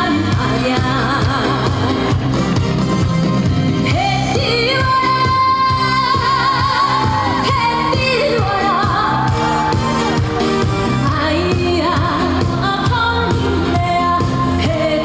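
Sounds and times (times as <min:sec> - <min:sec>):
woman singing: 0:00.0 - 0:02.2, 0:03.8 - 0:09.7, 0:11.0 - 0:15.0
backing track with steady beat: 0:00.0 - 0:15.0.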